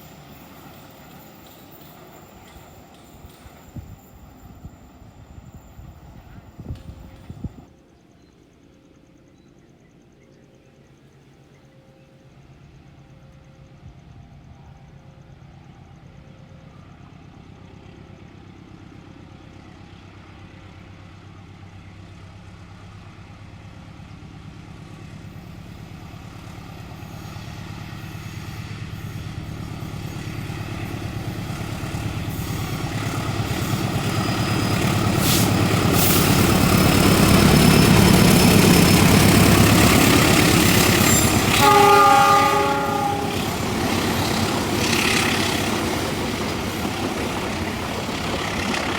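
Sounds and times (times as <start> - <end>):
train passing: 0.0 - 7.8, 10.9 - 48.9
train horn blast: 40.7 - 44.2.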